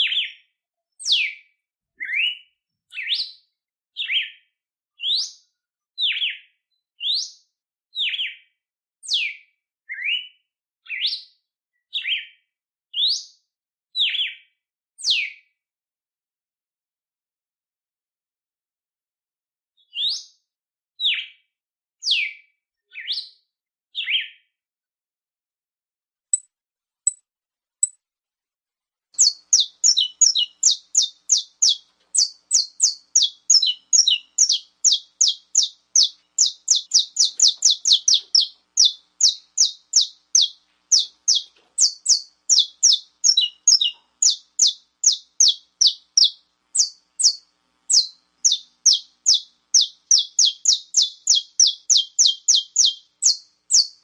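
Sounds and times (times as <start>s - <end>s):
songbird singing: 29.2s - 54.0s.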